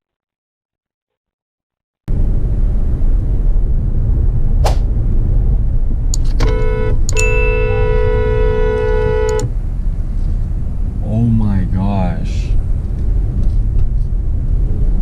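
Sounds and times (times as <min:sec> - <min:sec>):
car road rumble: 0:02.1 - 0:15.0
car horn honking: 0:06.3 - 0:09.5.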